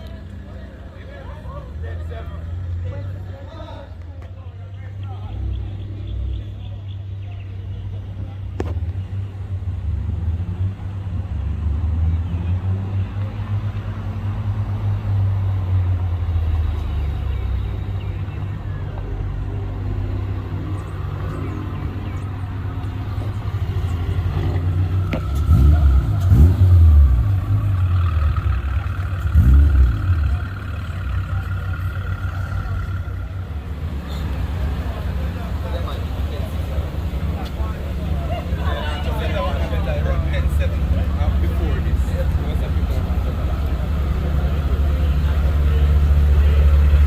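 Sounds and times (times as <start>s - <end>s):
car engine revving: 22.8s - 47.0s.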